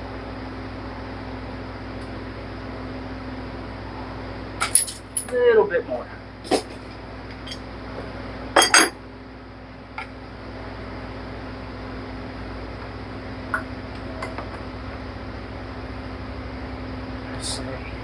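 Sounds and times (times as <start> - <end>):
steady low hum: 0.0 - 18.0
metal tools clinking on metal: 4.6 - 5.4.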